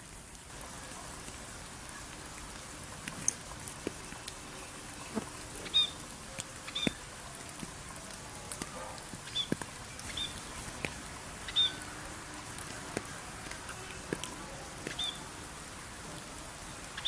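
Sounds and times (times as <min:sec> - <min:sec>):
raindrops clicking: 0:00.0 - 0:17.0
steady rain: 0:00.0 - 0:17.0
small bird chirping: 0:05.7 - 0:06.0, 0:09.2 - 0:10.4, 0:11.4 - 0:11.8.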